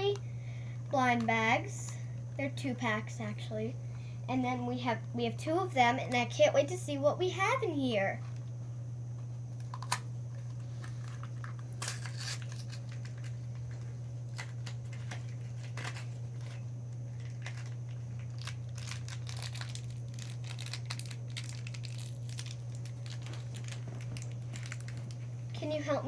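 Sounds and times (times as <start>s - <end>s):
steady low hum: 0.0s - 26.0s
plastic bags crinkling and tearing: 9.7s - 25.3s.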